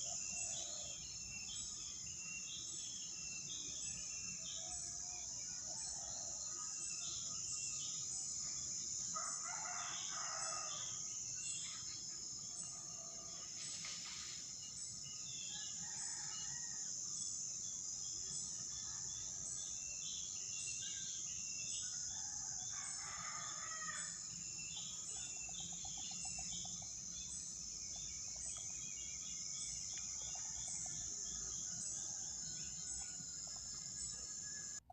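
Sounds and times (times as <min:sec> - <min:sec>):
high insect drone: 0:00.0 - 0:34.9
rooster crowing: 0:09.2 - 0:11.0, 0:22.5 - 0:24.2
small birds chirping: 0:24.3 - 0:34.9.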